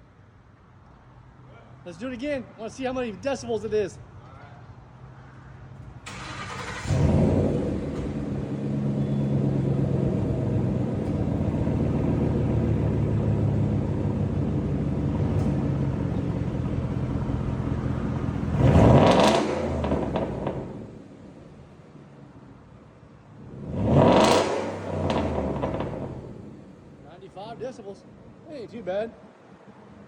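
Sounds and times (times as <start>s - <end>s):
car engine idling and revving: 5.8s - 27.1s.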